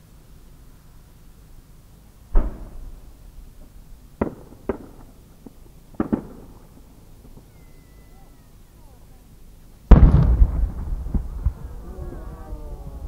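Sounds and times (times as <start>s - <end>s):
firework booms and bangs: 2.3s - 7.5s, 9.9s - 13.0s.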